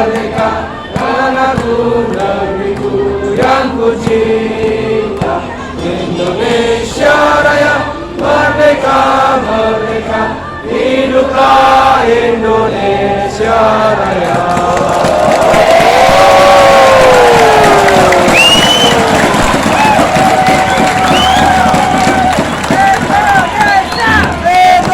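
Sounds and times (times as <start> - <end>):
choir singing long notes: 0.0 - 19.8.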